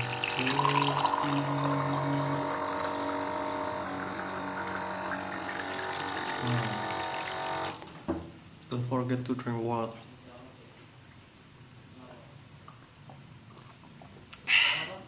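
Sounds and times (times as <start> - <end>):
water pouring into a cup: 0.0 - 7.8.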